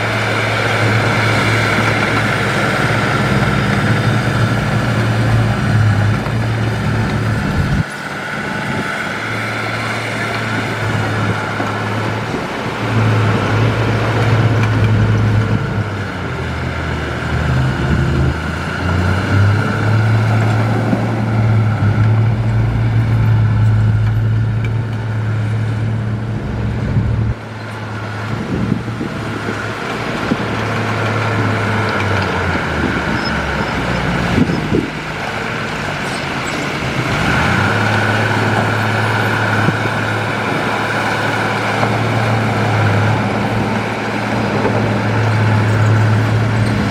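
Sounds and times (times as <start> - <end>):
diesel engine droning: 0.0 - 46.9.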